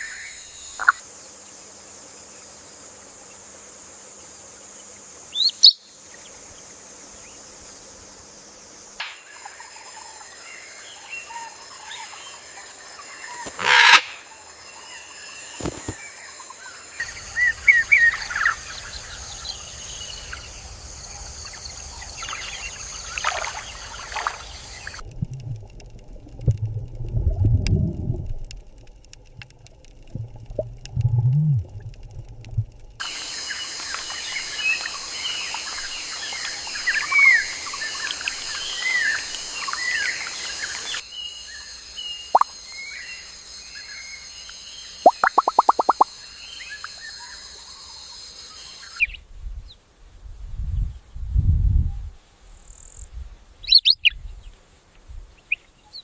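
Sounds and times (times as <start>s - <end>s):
outdoor nature ambience: 0.0s - 56.0s
strong low rumbling: 25.0s - 33.0s.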